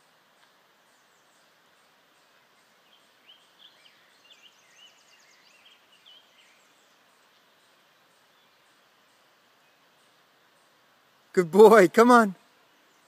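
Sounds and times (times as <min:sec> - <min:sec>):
background hiss: 0:00.0 - 0:13.0
songbird chirping and trilling: 0:00.0 - 0:13.0.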